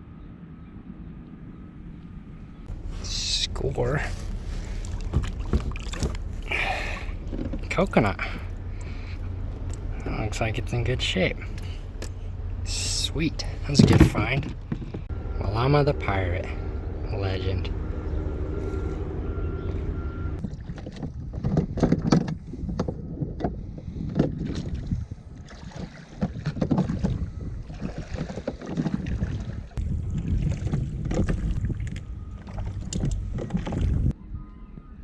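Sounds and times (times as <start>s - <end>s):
wind gusting on microphone: 0.0s - 35.0s
motor hum: 2.6s - 20.8s
water splashing and sloshing: 2.7s - 34.2s.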